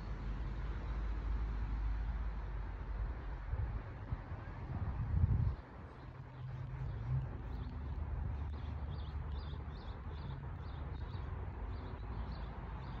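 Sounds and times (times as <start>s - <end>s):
wind rumble on microphone: 2.9s - 11.2s.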